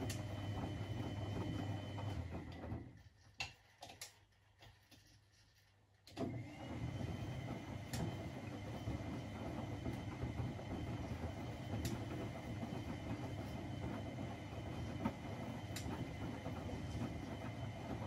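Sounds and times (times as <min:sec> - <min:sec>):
washing machine motor turning drum: 0:00.0 - 0:03.1, 0:06.2 - 0:18.0.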